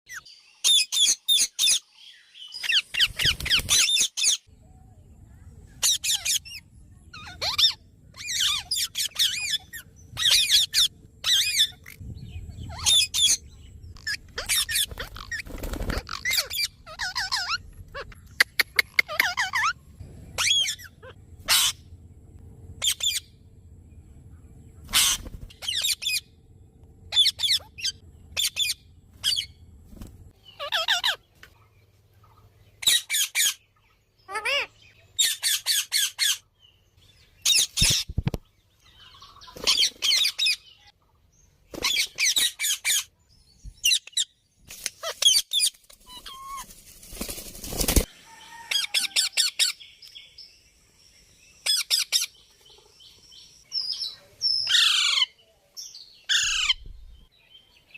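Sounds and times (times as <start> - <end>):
parrot squawking: 7.2 - 12.0, 14.0 - 15.4, 16.0 - 19.8, 20.4 - 21.8, 24.9 - 26.3, 27.1 - 29.5, 30.6 - 31.2, 34.3 - 36.4, 54.7 - 55.3.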